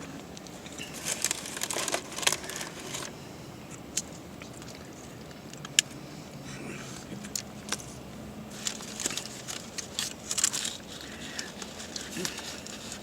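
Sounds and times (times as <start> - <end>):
paper wrappers crinkling: 0.0 - 3.1, 6.9 - 13.0.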